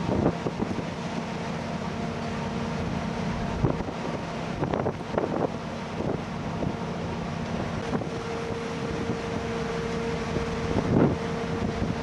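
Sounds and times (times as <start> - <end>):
wind on microphone: 0.0 - 0.9, 3.4 - 6.8, 10.2 - 12.0
low hum: 0.0 - 12.0
ship engines droning: 0.0 - 12.0.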